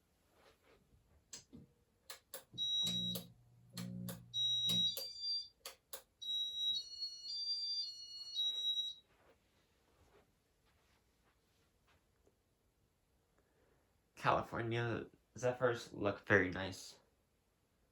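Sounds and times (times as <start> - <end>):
sharp clicks: 2.1 - 6.1
electronic beeping tune: 2.6 - 3.3, 4.2 - 5.6
high beeps: 2.6 - 3.3, 4.1 - 9.0.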